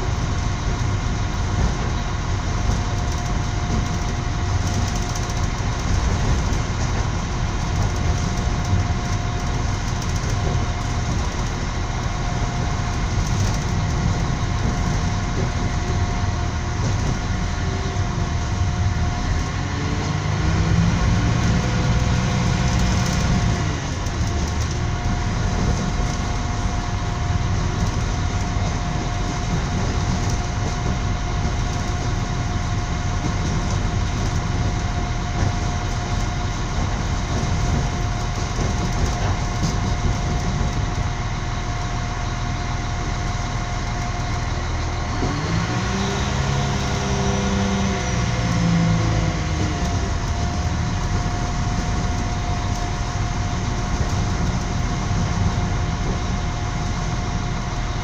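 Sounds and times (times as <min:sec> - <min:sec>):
train rumble: 0:00.0 - 0:58.0.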